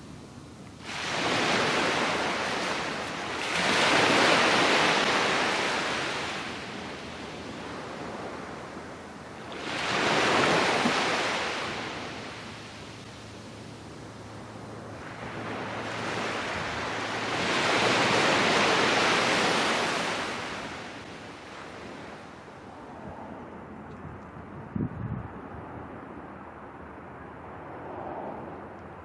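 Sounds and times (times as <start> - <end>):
sea waves breaking on beach: 0.8 - 23.0.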